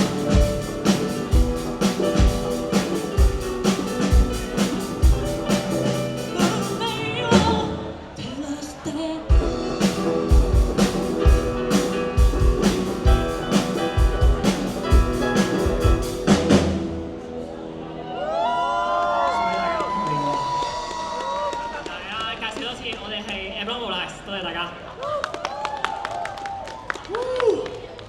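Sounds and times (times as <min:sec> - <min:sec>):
drum kit beat: 0:00.0 - 0:07.9, 0:09.3 - 0:17.2
live band playing: 0:00.0 - 0:08.2, 0:09.2 - 0:17.8
person singing: 0:05.5 - 0:11.4.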